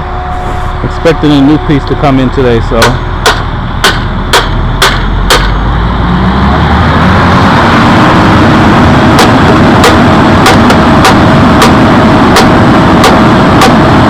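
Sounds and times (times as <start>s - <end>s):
hammer blows on metal: 0.0s - 5.7s, 9.1s - 14.0s
loud steady engine noise: 0.0s - 14.0s.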